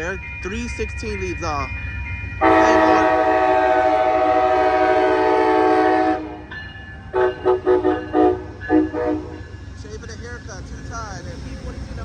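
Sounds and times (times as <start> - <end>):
passing train rumble: 0.0 - 12.0
locomotive air horn blasts: 2.4 - 6.5, 7.1 - 9.4.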